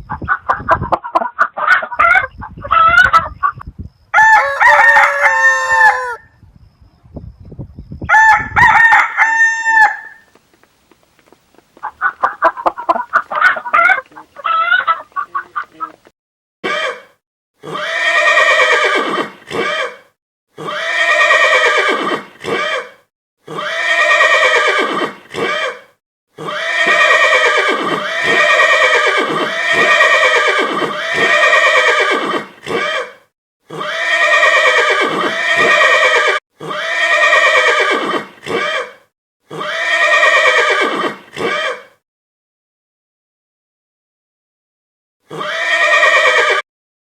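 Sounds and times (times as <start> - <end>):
horse whinnying: 16.6 - 42.0, 45.3 - 46.6.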